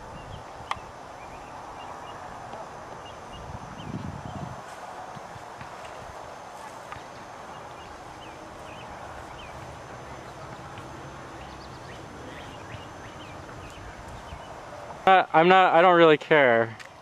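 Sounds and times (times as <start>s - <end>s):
steady background noise: 0.0s - 17.0s
faint bird chirps: 7.0s - 14.6s.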